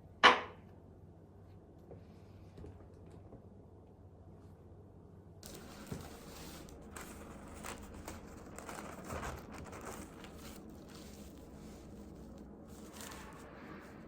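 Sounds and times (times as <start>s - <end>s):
paper rustling and crinkling: 5.4s - 14.0s.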